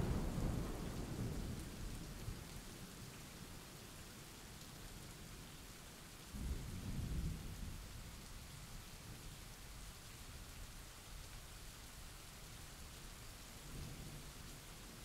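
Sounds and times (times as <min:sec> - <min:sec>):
thunder rolling: 0:00.0 - 0:01.7
steady rain falling: 0:00.0 - 0:15.0.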